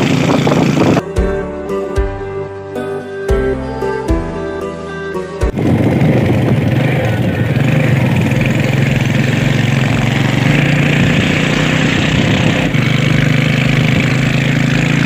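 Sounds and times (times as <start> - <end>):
motorcycle engine running: 0.0 - 1.4, 5.5 - 15.0.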